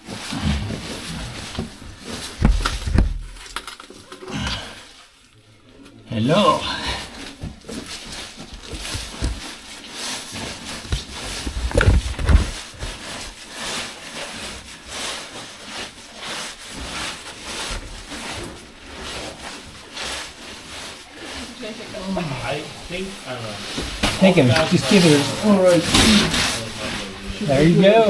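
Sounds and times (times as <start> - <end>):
clothing scraping against rock: 0.1 - 3.7, 6.5 - 28.0
heavy bumps: 0.6 - 3.7, 8.3 - 9.6.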